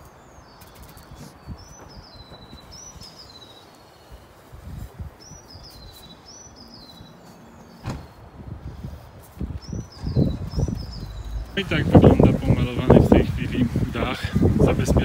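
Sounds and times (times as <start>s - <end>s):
faint outdoor background noise: 0.0s - 15.0s.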